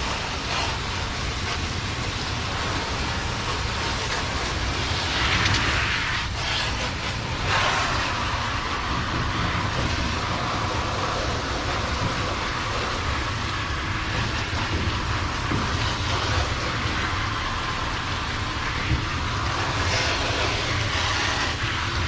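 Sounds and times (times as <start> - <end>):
hose spraying water: 0.0 - 22.0
low rumble: 2.4 - 13.0.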